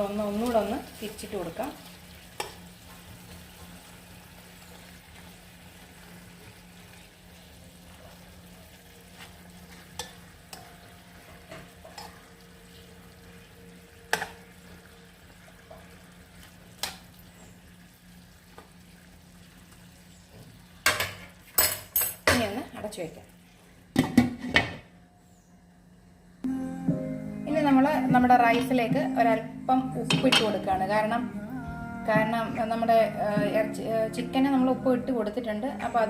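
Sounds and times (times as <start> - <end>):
chicken sizzling in a pot: 0.0 - 22.5.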